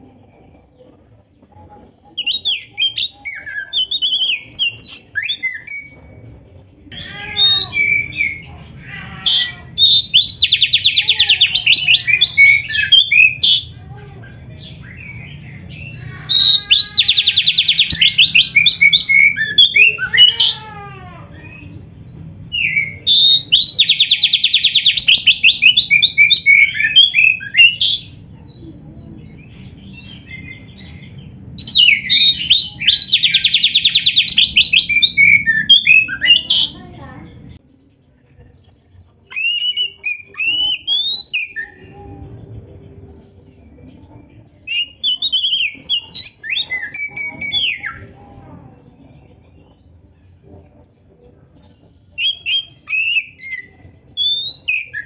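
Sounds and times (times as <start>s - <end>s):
bird singing with trills: 2.1s - 55.0s.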